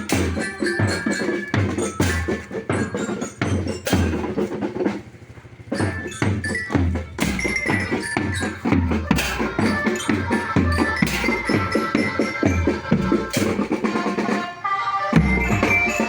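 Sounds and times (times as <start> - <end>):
drums beating: 0.0 - 16.0
marching band playing: 0.0 - 16.0
high bell tones: 5.7 - 13.7, 15.2 - 16.0.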